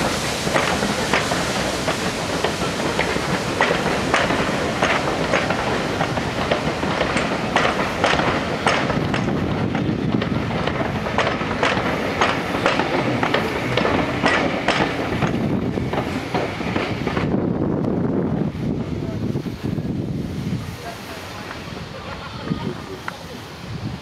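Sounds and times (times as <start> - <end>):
wheels clicking over rail joints: 0.0 - 18.0
train rumble: 0.0 - 24.0.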